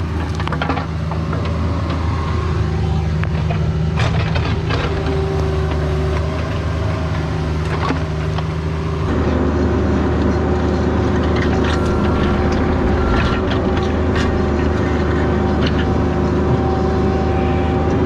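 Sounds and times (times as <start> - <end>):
excavator diesel engine running: 11.1 - 17.8.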